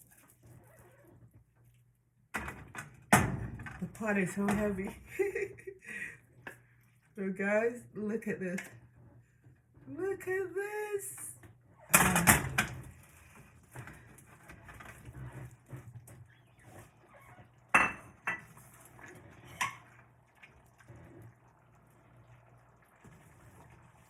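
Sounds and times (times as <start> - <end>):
scraping in a pot: 13.0 - 20.1
metal pot and utensils clattering: 17.7 - 20.0.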